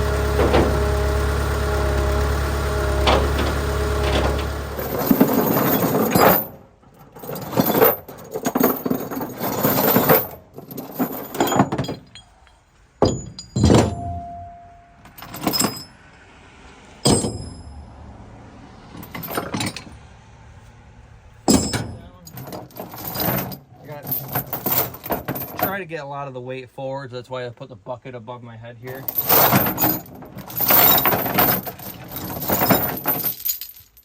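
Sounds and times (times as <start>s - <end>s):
metal clanks and rattles: 0.0s - 16.0s, 17.0s - 17.8s, 18.9s - 20.0s, 21.4s - 25.8s, 28.9s - 34.0s.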